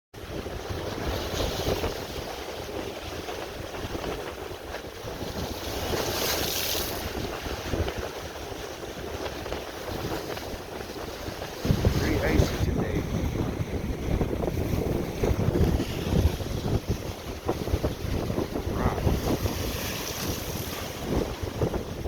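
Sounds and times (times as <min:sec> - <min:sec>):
waves washing on shore: 0:00.2 - 0:22.0
wind buffeting microphone: 0:00.2 - 0:22.0.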